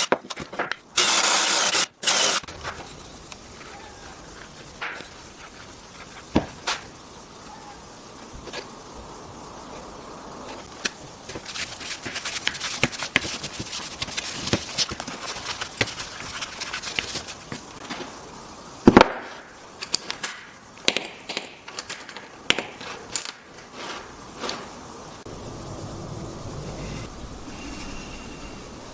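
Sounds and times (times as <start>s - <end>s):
wooden pieces and tools clicking: 0.0s - 7.0s, 10.5s - 24.9s.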